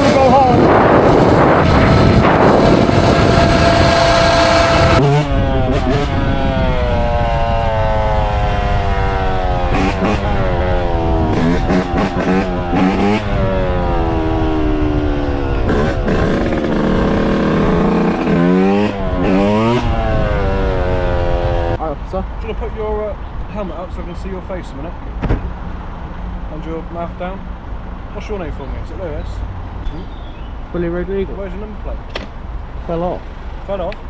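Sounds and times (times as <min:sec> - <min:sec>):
motorcycle engine revving: 0:00.0 - 0:21.8
steady engine tone: 0:00.0 - 0:22.1.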